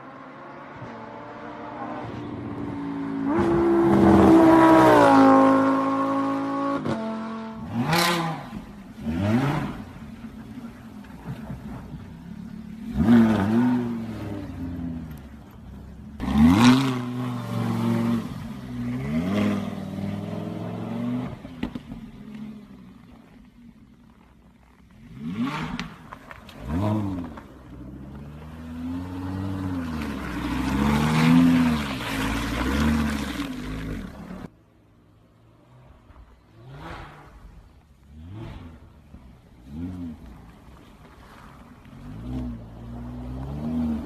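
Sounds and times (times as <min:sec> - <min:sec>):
car engine revving: 0:00.0 - 0:23.2.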